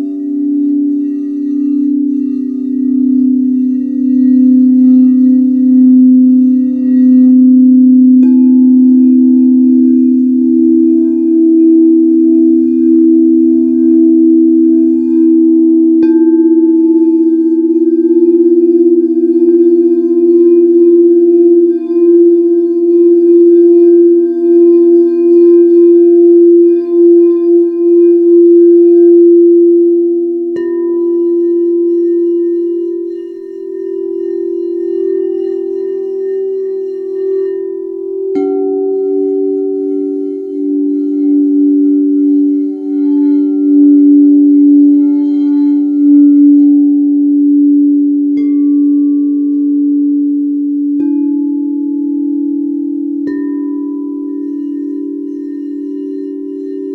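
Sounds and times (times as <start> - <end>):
singing bowls ringing: 0.0 - 56.9.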